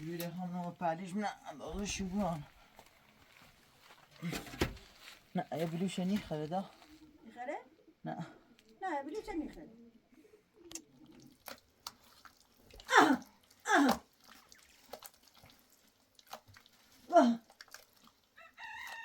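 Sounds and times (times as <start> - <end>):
water dripping: 10.7 - 19.0
water splashing: 10.7 - 19.0.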